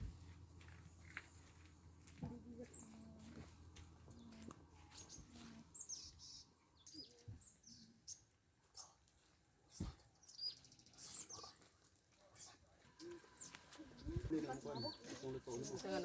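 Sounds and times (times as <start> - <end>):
small birds chirping faintly: 0.0 - 16.0.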